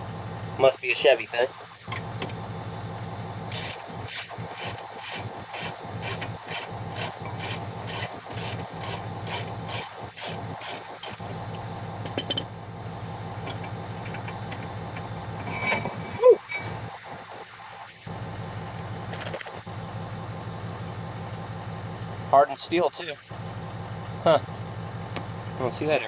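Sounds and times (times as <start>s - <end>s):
hand ratchet rasping: 3.5s - 11.2s.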